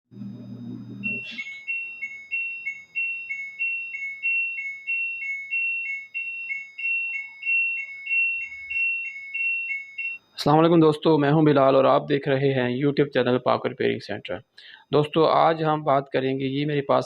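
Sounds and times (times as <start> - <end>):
low hum: 0.1 - 1.6
two-tone electronic beeping: 1.0 - 10.3.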